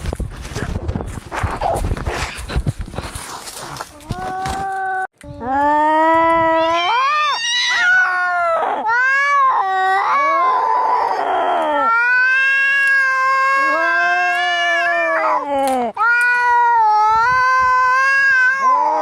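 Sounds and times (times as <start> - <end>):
cats yowling in a fight: 6.5 - 19.0.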